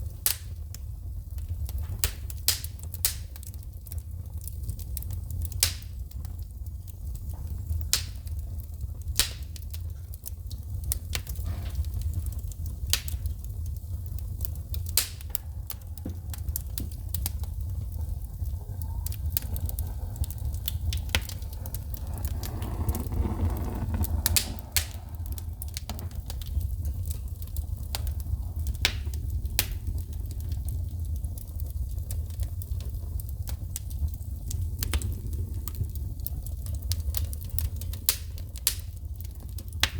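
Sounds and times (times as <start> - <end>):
wood fire crackling and popping: 0.0 - 39.9
low steady rumble: 15.5 - 28.8.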